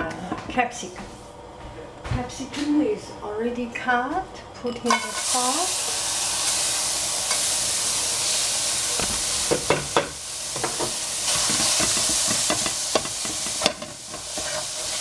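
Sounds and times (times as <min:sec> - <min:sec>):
vegetables sizzling in a frying pan: 0:04.7 - 0:15.0.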